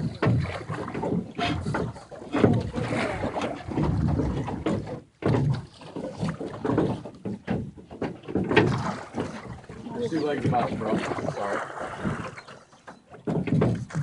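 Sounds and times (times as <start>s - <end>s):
water splashing against boat hull: 0.0s - 14.0s.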